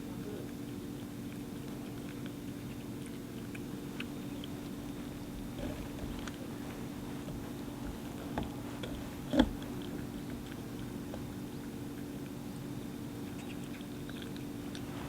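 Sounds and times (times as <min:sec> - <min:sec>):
cat chewing and licking: 0:00.0 - 0:15.0
steady low hum: 0:00.0 - 0:15.0.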